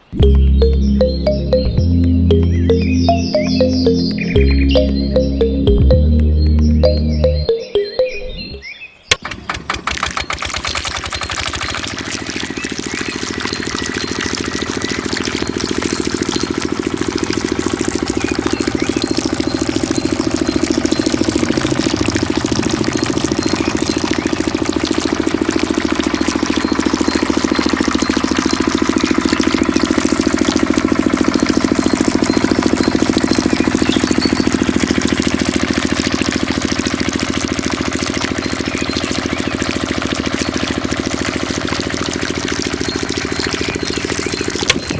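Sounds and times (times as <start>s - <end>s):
diesel water pump engine running: 9.2s - 44.9s.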